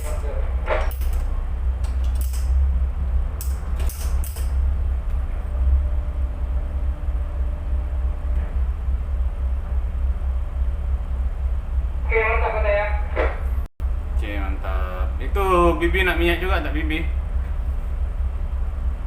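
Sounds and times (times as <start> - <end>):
sharp clicks and knocks: 0.0 - 2.6, 3.4 - 5.2
tugboat engine rumbling: 0.0 - 19.0.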